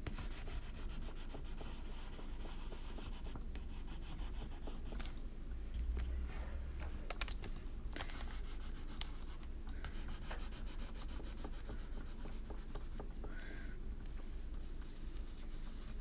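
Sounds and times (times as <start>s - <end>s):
crayon scratching on paper: 9.9s - 13.2s.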